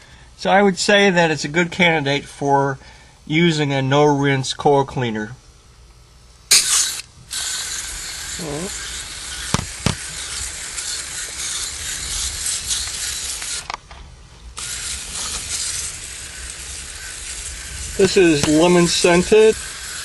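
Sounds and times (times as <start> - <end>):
aerosol can spraying hiss: 6.5 - 13.7, 14.6 - 20.0.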